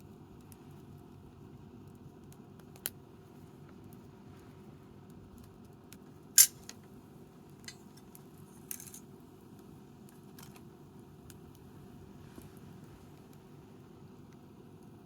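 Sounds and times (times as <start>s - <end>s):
bonfire crackling: 0.0s - 15.0s
low background noise: 0.0s - 15.0s
burning wood popping: 5.0s - 15.0s.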